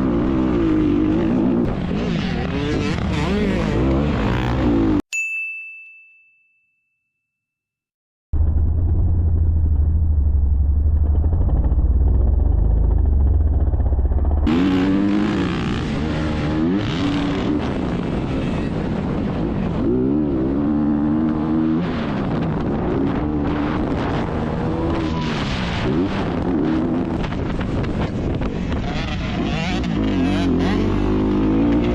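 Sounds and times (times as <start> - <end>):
dirt bike engines revving: 0.0 - 5.0, 14.4 - 31.9
muffled low engine rumble: 8.4 - 14.5.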